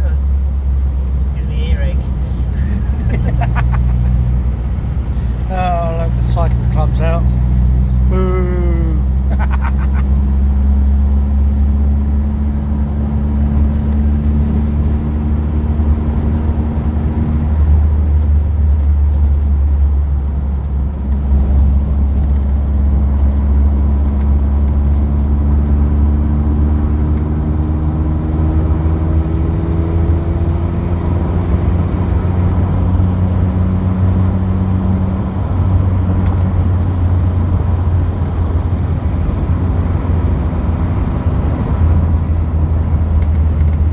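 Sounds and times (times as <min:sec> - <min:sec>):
car engine humming: 0:00.0 - 0:43.9
road noise: 0:00.0 - 0:43.9.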